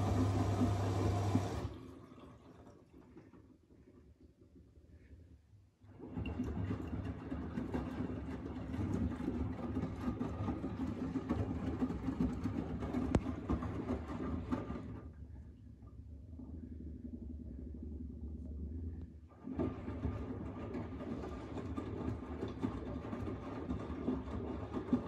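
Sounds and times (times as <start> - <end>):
washing machine drum rumbling: 0.0 - 1.7.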